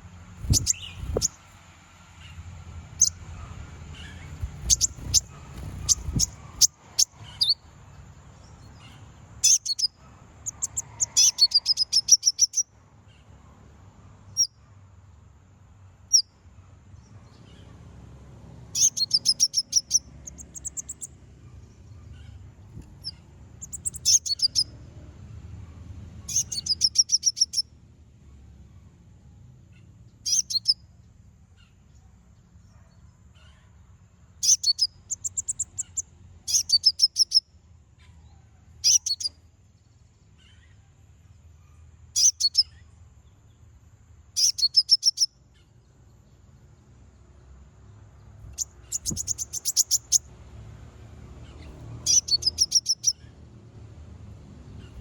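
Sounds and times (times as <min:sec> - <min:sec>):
bird chattering song: 0:00.4 - 0:01.5, 0:02.2 - 0:13.3, 0:16.1 - 0:16.3, 0:18.7 - 0:24.7, 0:26.2 - 0:27.7, 0:29.7 - 0:30.9, 0:34.4 - 0:38.2, 0:38.8 - 0:40.8, 0:41.7 - 0:43.5, 0:44.3 - 0:45.8, 0:48.3 - 0:50.3, 0:51.4 - 0:53.4.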